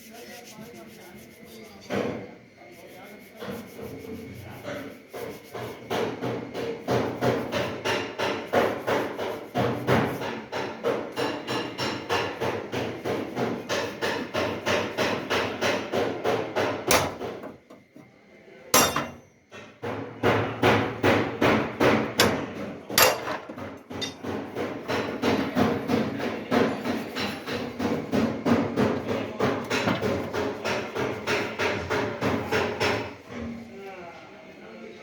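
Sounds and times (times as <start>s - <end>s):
hammer beating car body metal: 5.9s - 17.7s, 18.8s - 19.2s, 19.8s - 33.2s.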